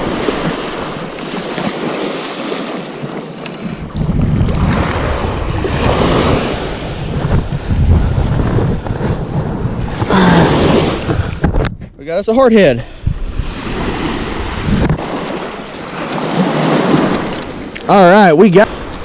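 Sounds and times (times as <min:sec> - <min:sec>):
surf breaking on a beach: 0:00.0 - 0:11.6
wind buffeting the microphone: 0:03.0 - 0:19.0.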